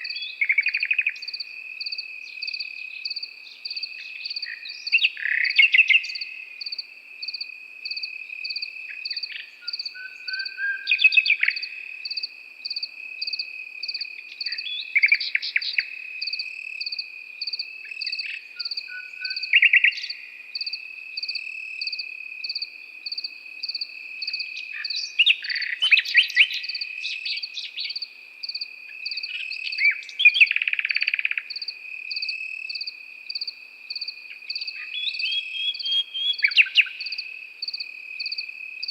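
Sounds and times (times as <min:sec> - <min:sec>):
insect pulsing chirp: 0:00.0 - 0:38.9
nightingale singing: 0:00.0 - 0:38.9.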